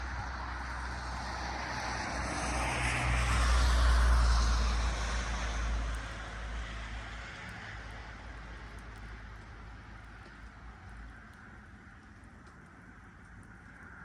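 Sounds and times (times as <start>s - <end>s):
engine passing by: 0.0s - 8.4s.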